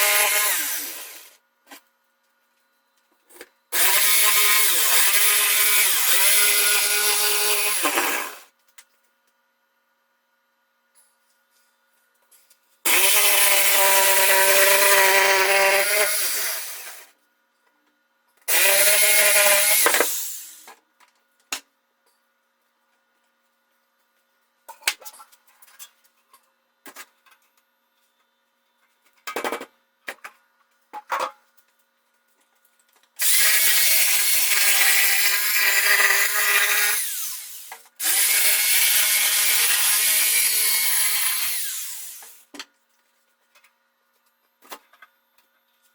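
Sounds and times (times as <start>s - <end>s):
power saw cutting: 0.0s - 1.3s, 3.8s - 8.4s, 12.9s - 17.1s, 18.5s - 20.6s, 33.2s - 42.4s.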